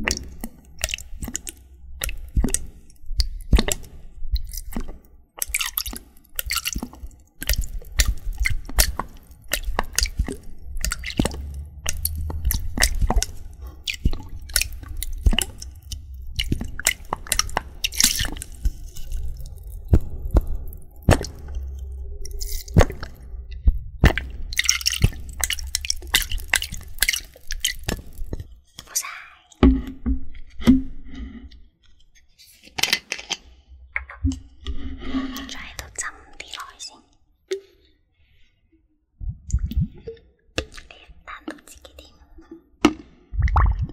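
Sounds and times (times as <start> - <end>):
sharp crackles and clicks: 0.0 - 28.6
low rumble: 8.6 - 28.6, 39.2 - 40.0.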